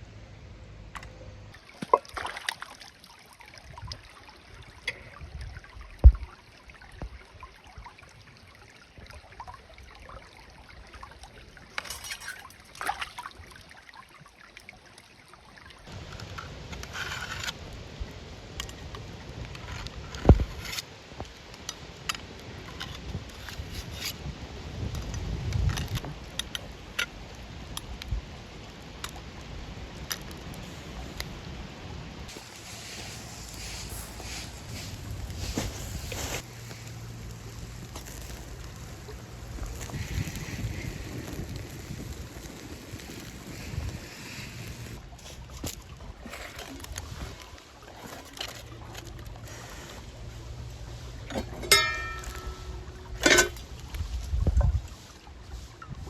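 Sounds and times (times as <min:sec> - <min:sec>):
soft outdoor background: 0:00.0 - 0:56.0
cookware and utensils clinking: 0:51.3 - 0:53.7.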